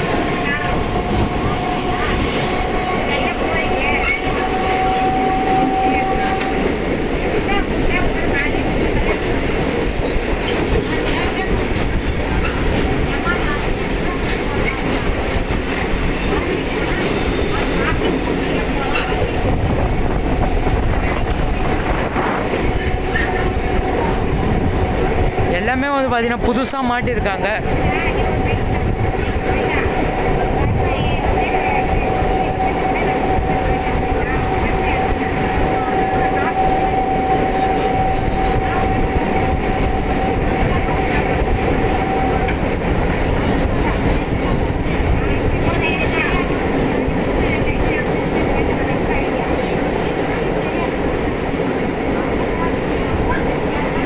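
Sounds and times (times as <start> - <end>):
train wheels rumbling on track: 0.0 - 54.0.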